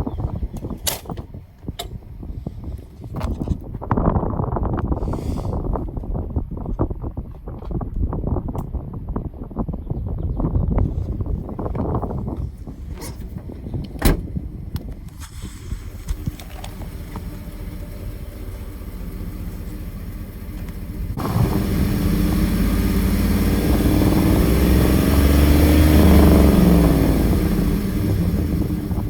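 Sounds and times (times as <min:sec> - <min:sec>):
pickup truck driving past: 0:17.0 - 0:29.0.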